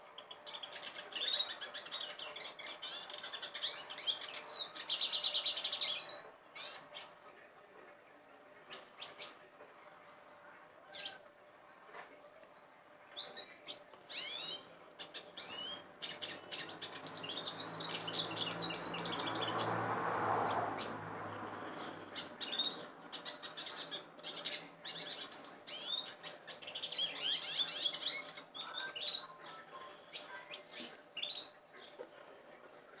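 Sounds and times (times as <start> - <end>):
fast twittering birdsong: 0.1 - 7.2, 13.2 - 32.0
finches and canaries chirping: 0.1 - 7.2, 13.2 - 32.3.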